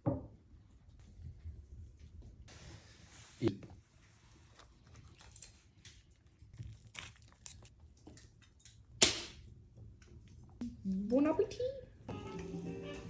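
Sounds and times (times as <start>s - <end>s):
kitchenware crackles and taps: 7.4s - 10.6s.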